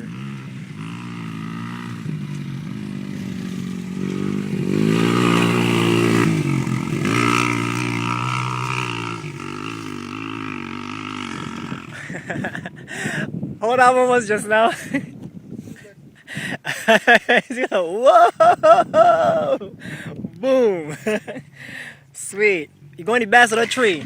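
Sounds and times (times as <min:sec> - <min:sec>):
dirt bike engine revving: 0:00.0 - 0:12.8.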